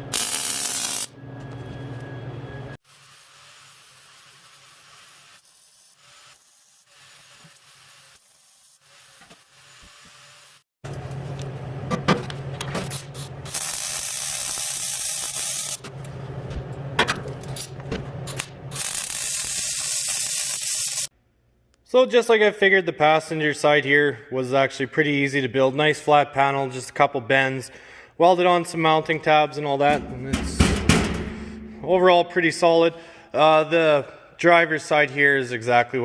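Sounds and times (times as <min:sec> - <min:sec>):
welding crackling hiss: 0:00.0 - 0:01.1, 0:13.5 - 0:15.8, 0:18.8 - 0:21.1
steady low hum: 0:29.9 - 0:33.4.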